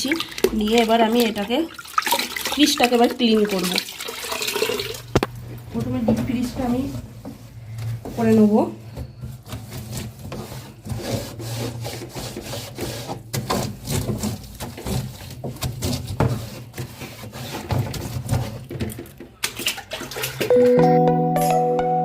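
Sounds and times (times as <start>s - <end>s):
scrubbing and wiping strokes: 5.8s - 18.7s.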